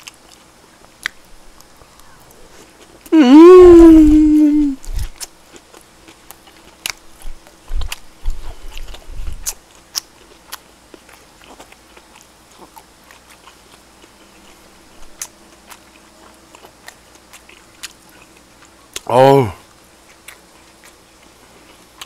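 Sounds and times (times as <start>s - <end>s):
close chewing with wet clicks: 0.0s - 3.1s, 4.8s - 22.0s
faint steady hum: 0.0s - 22.0s.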